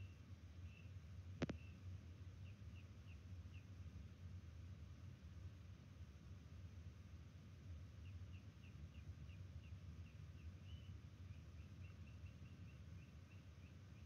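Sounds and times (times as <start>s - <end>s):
low steady hum: 0.0s - 14.0s
bird chirping: 8.0s - 14.0s.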